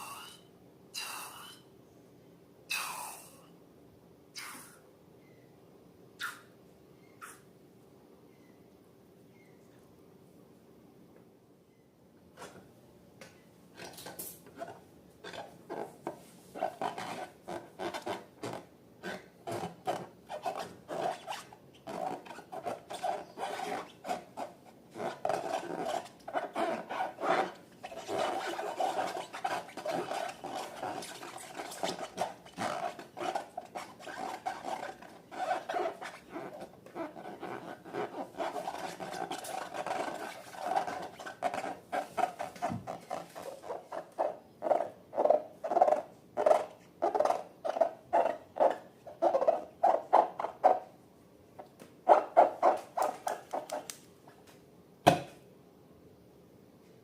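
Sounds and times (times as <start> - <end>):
slime scraping in a bowl: 13.8 - 45.0, 52.2 - 53.9.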